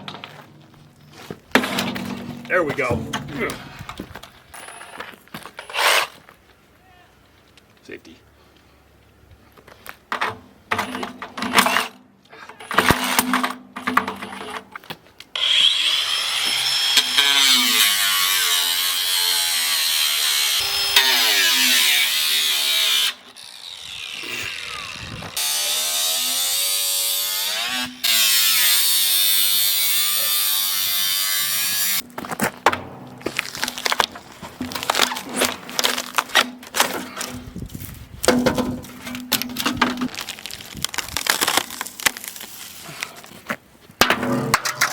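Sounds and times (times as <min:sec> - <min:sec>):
scraping and knocking: 0:01.3 - 0:04.4
power tool cutting steel: 0:15.4 - 0:32.0.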